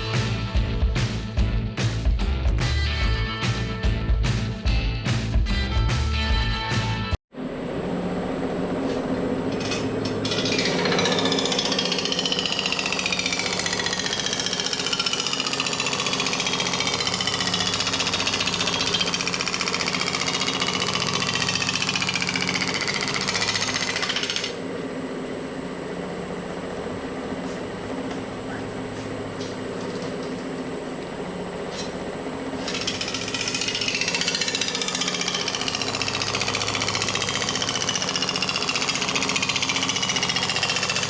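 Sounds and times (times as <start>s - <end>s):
power hammer machine running: 7.4s - 41.0s
power hammer striking sheet metal: 9.5s - 24.6s, 32.6s - 41.0s.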